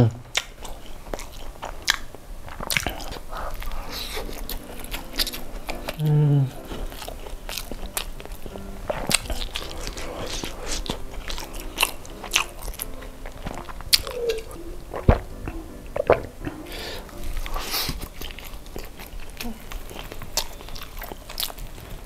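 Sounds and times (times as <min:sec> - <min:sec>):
chewing crunchy fried chicken: 0:00.3 - 0:22.0
person gulping a drink: 0:13.4 - 0:18.2.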